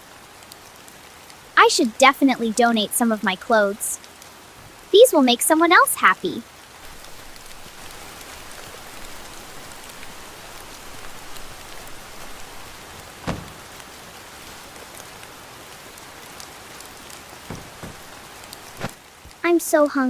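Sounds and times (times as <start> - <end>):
rain falling: 0.0 - 20.0
thump: 10.6 - 13.7, 17.5 - 18.2.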